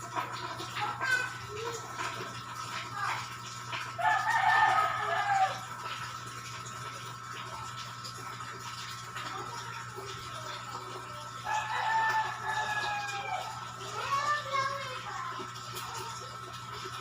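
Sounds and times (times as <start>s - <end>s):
rooster crowing: 4.0s - 5.7s, 11.4s - 13.6s.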